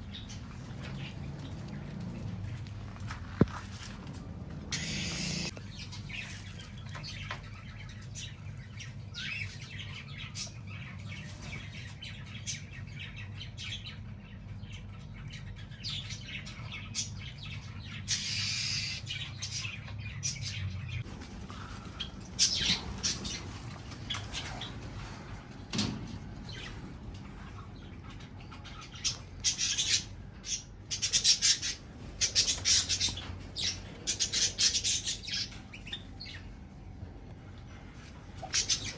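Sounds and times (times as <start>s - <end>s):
low steady hum: 0.0s - 38.9s
parrots chirping and squawking: 4.7s - 25.4s, 26.5s - 36.5s, 38.4s - 38.9s.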